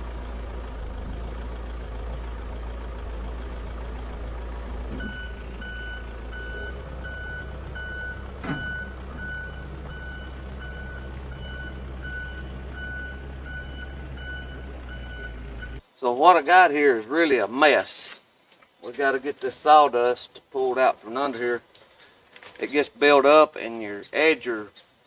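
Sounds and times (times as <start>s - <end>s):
backhoe engine running: 0.0s - 15.8s
reversing alarm beeping: 4.9s - 15.8s.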